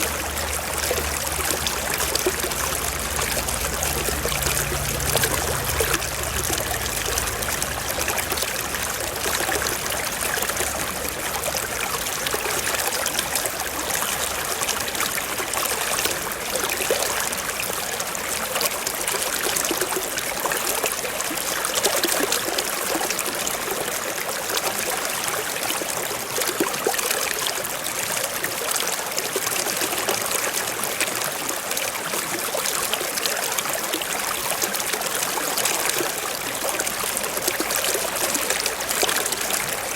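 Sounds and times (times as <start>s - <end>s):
stream trickling and babbling: 0.0s - 39.9s.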